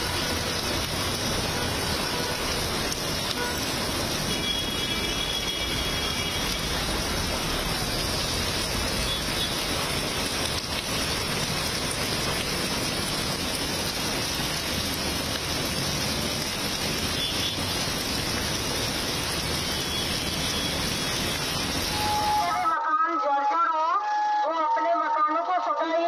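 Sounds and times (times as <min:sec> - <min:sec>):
heavy rain pouring on road: 0:00.0 - 0:26.0.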